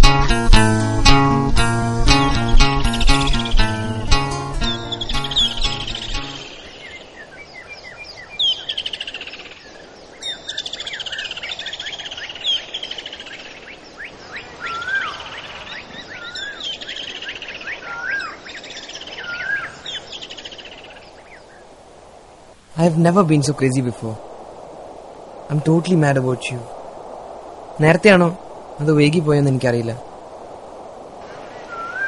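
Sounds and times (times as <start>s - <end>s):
bird descending trill: 0.0s - 6.6s, 31.6s - 32.0s
bird whistled notes: 2.1s - 6.7s, 31.6s - 32.0s.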